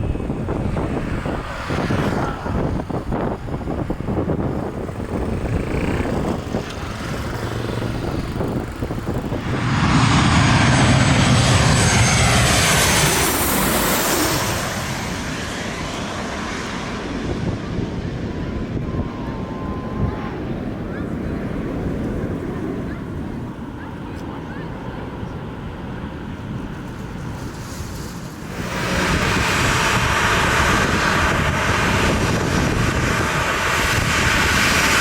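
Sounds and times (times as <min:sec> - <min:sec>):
airliner passing: 0:00.0 - 0:35.0
wind buffeting microphone: 0:00.0 - 0:35.0.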